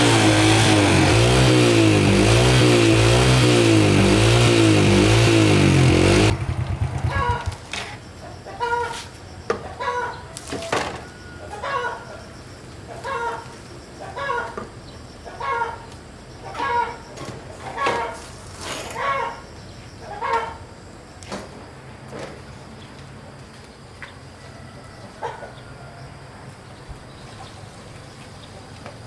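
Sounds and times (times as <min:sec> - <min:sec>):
motorbike engine revving: 0:00.0 - 0:07.8
chickens clucking: 0:06.9 - 0:09.0, 0:24.8 - 0:25.9.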